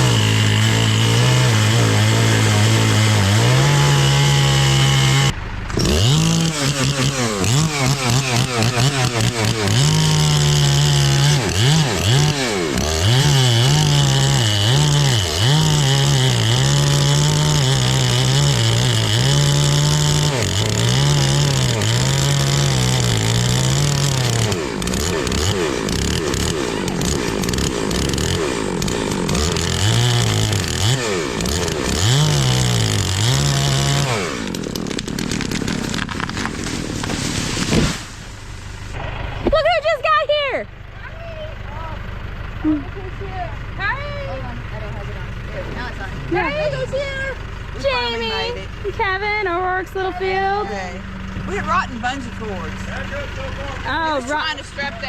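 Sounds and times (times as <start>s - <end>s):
chainsaw revving: 0.0s - 41.0s, 41.6s - 55.0s.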